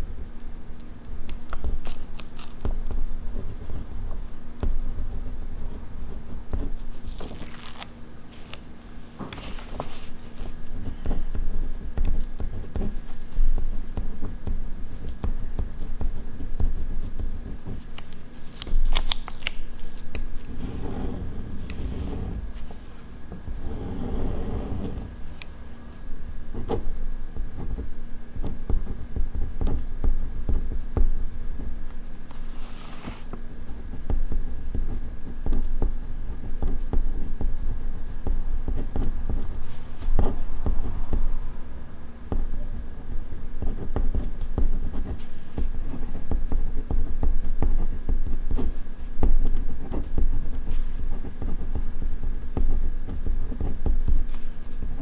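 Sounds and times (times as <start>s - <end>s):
faint steady hum: 0.0s - 55.0s
pen scratching on paper: 20.5s - 22.8s, 23.5s - 25.2s.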